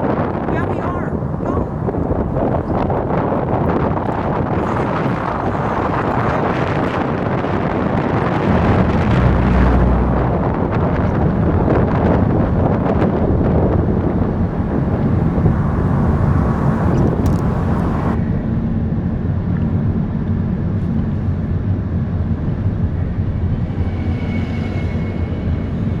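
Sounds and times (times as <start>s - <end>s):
car driving rumble: 0.0s - 18.2s
road and wind noise: 0.0s - 26.0s.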